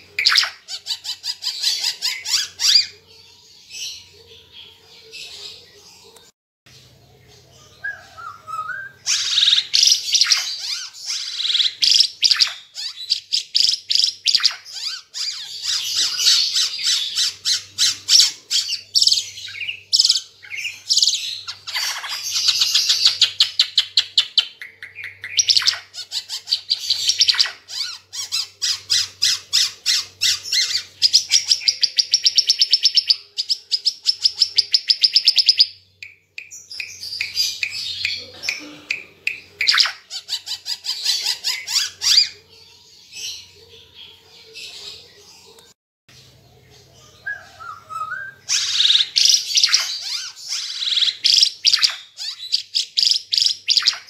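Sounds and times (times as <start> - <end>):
bird chattering and trilling: 7.9 - 42.5, 46.6 - 54.0.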